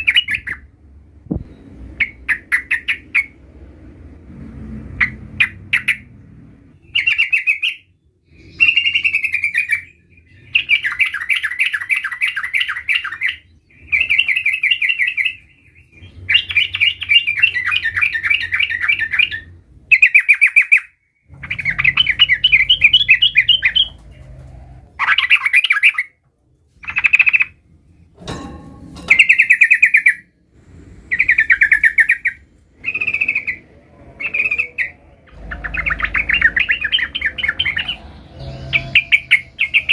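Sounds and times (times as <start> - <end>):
bulbul chattering trills: 10.4 - 24.2, 31.1 - 39.9.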